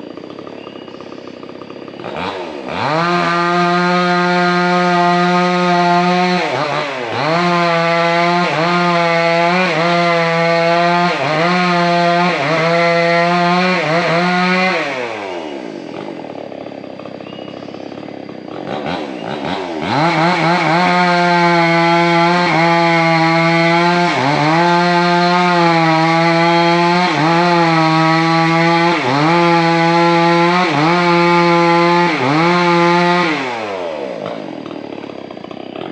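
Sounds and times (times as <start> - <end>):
chainsaw cutting wood: 0.0 - 35.9
chainsaw idling: 0.0 - 35.9.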